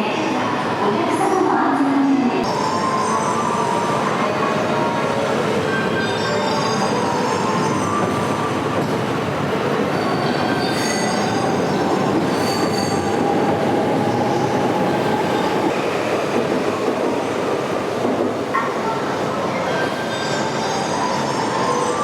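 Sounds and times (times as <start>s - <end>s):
train rumbling: 2.3s - 22.0s
high wheel squeals: 9.9s - 13.3s.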